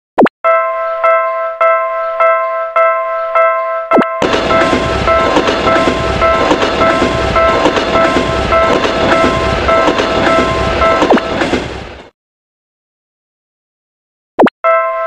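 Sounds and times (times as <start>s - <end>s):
crossing bell clanging: 0.5s - 11.6s, 14.6s - 15.0s
train wheels clattering over joints: 4.2s - 12.1s.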